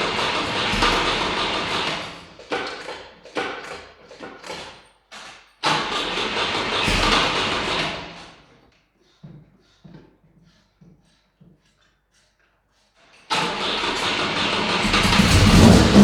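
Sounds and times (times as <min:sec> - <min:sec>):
engine coughing: 0:00.0 - 0:02.4, 0:13.4 - 0:16.0
car engine cranking and catching: 0:00.0 - 0:04.6, 0:05.6 - 0:08.4, 0:13.3 - 0:16.0.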